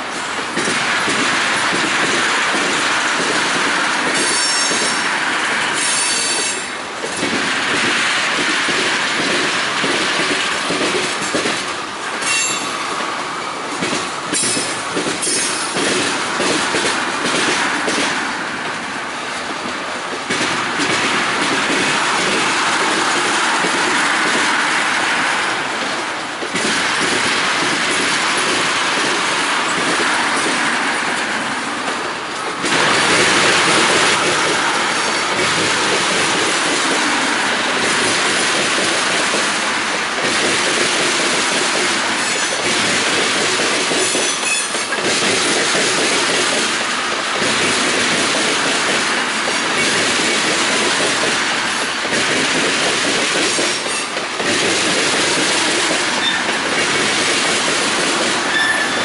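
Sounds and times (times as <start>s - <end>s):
freight train wheels rumbling on rail: 0.0s - 59.0s.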